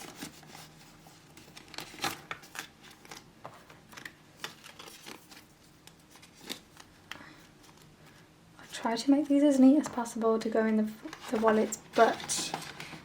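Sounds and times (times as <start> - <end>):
banknotes rustling: 0.0 - 8.3, 11.0 - 13.0.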